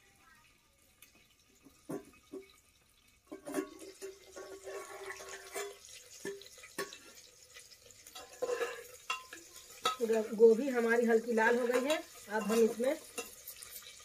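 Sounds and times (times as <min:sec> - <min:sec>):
vegetables sizzling in oil: 0:00.0 - 0:14.0
metal lid clinking: 0:03.3 - 0:07.2, 0:08.1 - 0:10.2
metal spatula knocking on pot: 0:08.2 - 0:10.2, 0:11.5 - 0:13.4.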